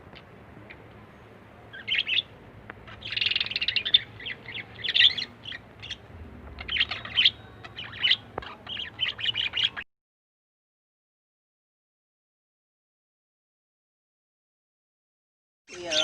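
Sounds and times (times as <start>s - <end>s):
lovebirds chirping: 0.0s - 9.9s, 15.7s - 16.0s.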